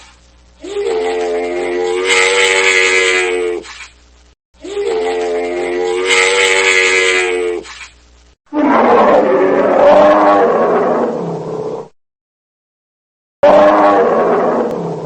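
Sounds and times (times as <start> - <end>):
long animal calls: 0.6 - 3.7, 4.6 - 7.7.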